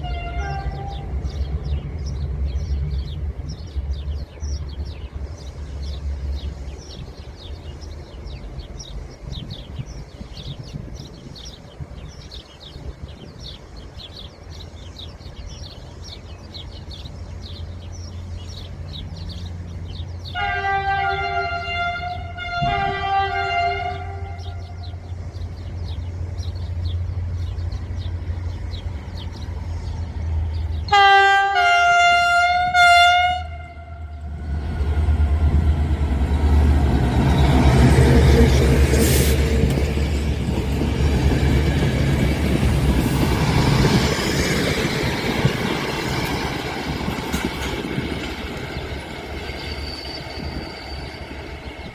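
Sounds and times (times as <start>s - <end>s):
locomotive horn blast: 0.0s - 1.2s, 20.3s - 25.0s, 30.9s - 35.0s
train wheels rumbling on rails: 0.0s - 51.9s
locomotive engine drone: 16.6s - 51.9s.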